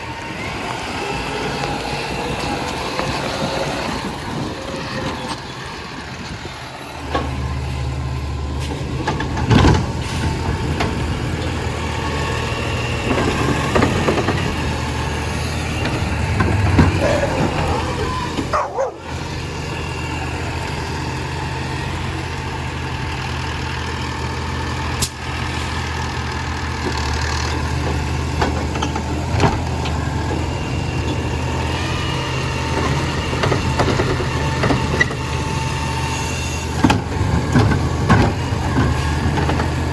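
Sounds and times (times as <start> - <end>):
garbage truck engine running: 0.0 - 39.9
sharp clunks and knocks: 36.7 - 39.8.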